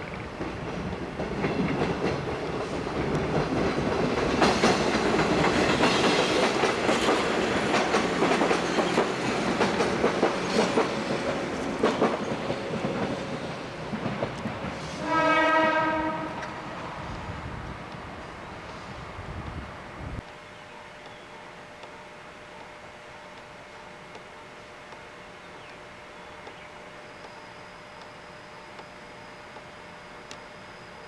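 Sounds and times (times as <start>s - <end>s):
train wheels clattering: 0.0s - 16.6s
train horn blast: 14.9s - 17.0s.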